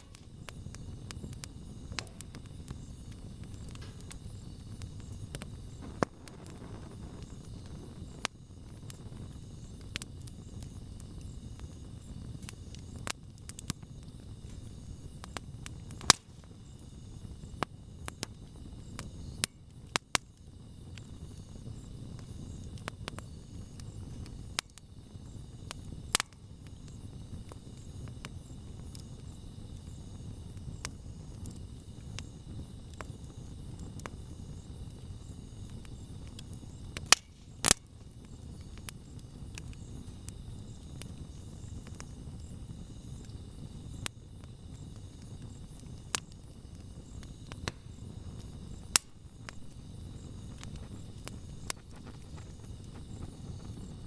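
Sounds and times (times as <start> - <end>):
campfire hissing: 0.0 - 54.0
insects chirping: 0.0 - 54.0.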